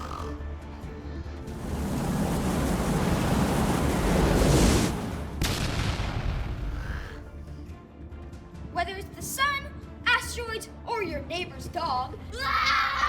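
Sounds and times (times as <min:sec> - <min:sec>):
explosion rumble: 0:01.4 - 0:06.9
sharp explosion crack: 0:01.5 - 0:06.9.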